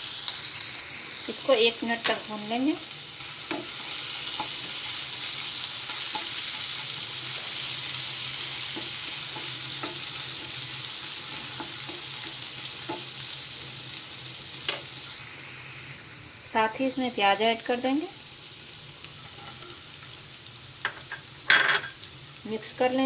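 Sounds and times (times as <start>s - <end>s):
spices sizzling in oil: 0.0s - 23.0s.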